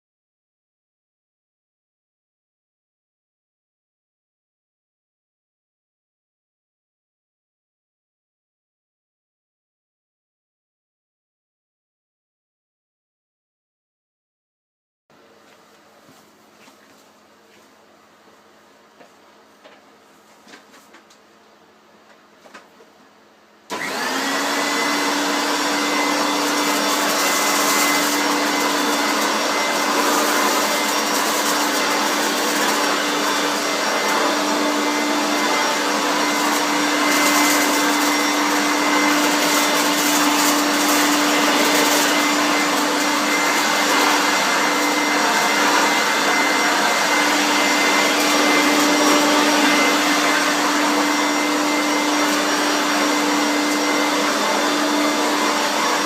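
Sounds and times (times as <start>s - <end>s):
vacuum cleaner running: 23.7s - 56.0s.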